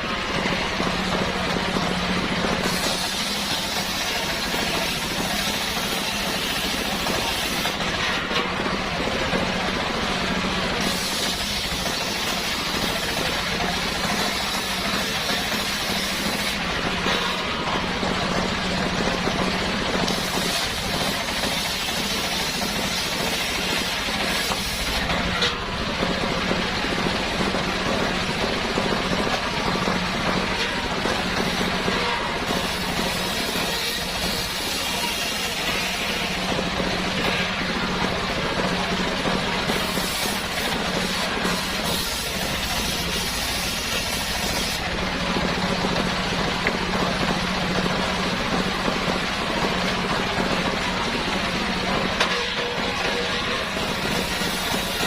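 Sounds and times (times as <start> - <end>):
engine-driven circular saw running: 0.0 - 55.0.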